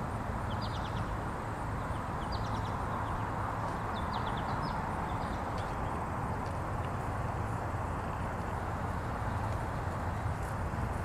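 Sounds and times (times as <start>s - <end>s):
outdoor background rush: 0.0s - 11.0s
small birds chirping: 0.4s - 7.0s.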